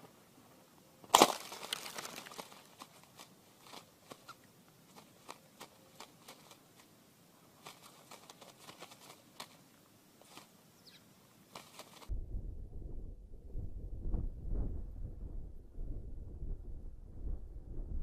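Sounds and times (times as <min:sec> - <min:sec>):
crackling rustle: 0:00.0 - 0:12.1.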